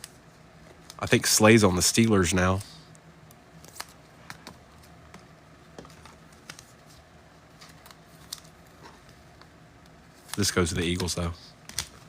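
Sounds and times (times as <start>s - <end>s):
low steady hum: 0.0s - 12.0s
cards tapping and clicking: 9.4s - 12.0s.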